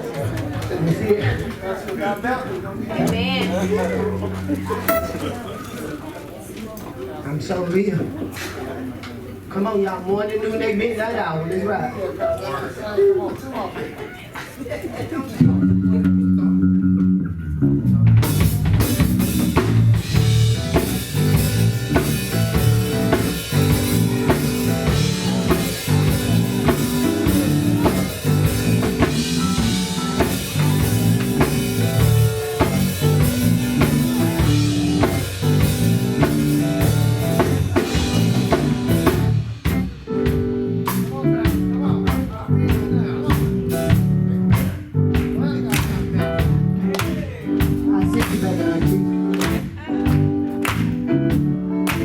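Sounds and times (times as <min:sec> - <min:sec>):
bass guitar: 0:02.9 - 0:05.4, 0:15.4 - 0:52.0
electric guitar: 0:02.9 - 0:05.5, 0:15.4 - 0:52.0
drum kit steady beat: 0:03.2 - 0:05.4, 0:18.2 - 0:52.0.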